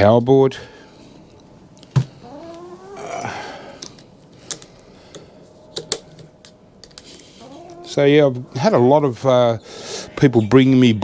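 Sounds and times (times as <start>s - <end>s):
chicken call rising in pitch: 2.2s - 3.8s, 7.4s - 8.7s
light clicks of parts handled: 3.8s - 7.3s.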